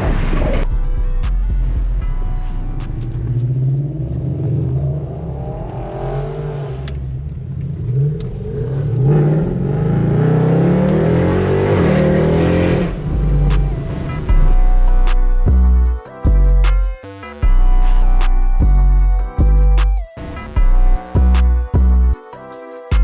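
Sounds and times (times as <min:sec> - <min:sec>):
loud music with drum beat: 0:00.0 - 0:03.4, 0:12.9 - 0:23.0
car accelerating: 0:00.0 - 0:15.9.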